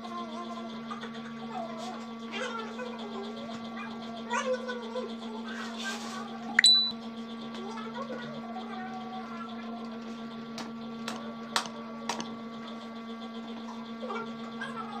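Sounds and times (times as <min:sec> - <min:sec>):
electrical hum: 0:06.2 - 0:09.3.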